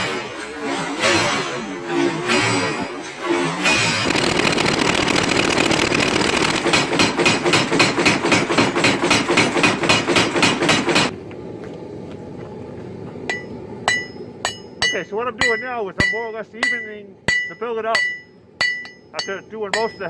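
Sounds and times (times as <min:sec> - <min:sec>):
power hammer pounding metal: 0:00.0 - 0:11.1
hand hammer ringing on anvil: 0:13.3 - 0:20.0.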